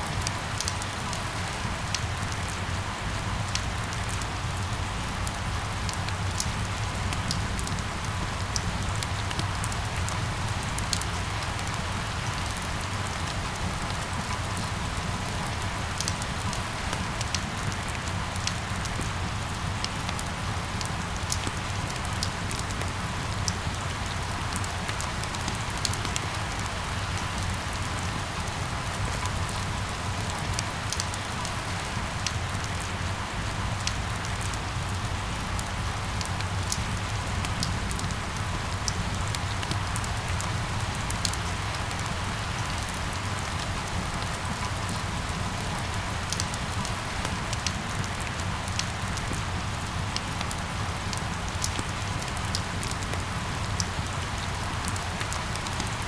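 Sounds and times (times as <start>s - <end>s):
steady rain falling: 0.0s - 56.0s
raindrops ticking on hard surface: 20.8s - 56.0s.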